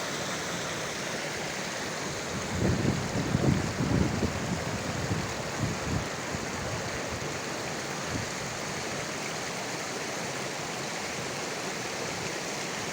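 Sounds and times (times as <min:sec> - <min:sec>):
stream rushing: 0:00.0 - 0:12.9.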